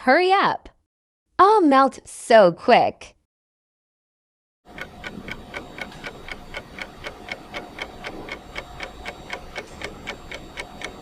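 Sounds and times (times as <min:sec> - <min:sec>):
clock ticking: 0:04.7 - 0:11.0.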